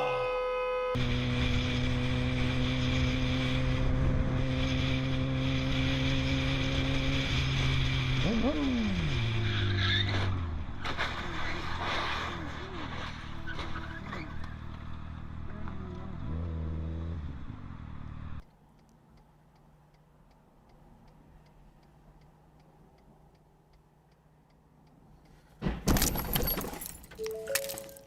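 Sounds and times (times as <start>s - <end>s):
traffic road and engine noise: 0.9s - 28.0s
steady light ticking: 18.4s - 25.4s.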